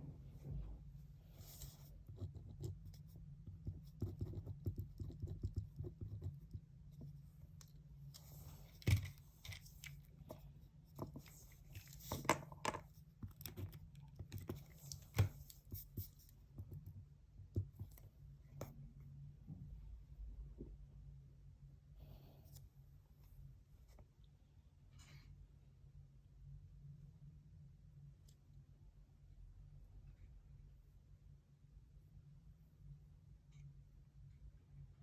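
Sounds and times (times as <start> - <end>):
low room hum: 0.0 - 35.0
pen scratching on paper: 1.4 - 6.6.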